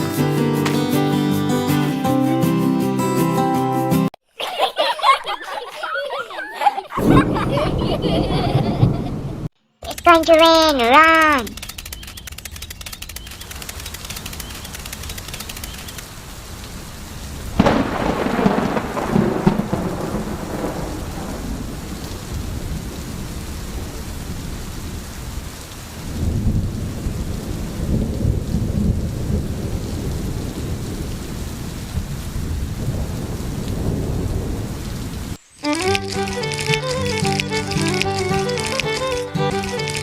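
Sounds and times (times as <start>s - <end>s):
steady rain: 4.4s - 40.0s
thunder clap and rumble: 7.0s - 9.5s, 16.7s - 35.4s.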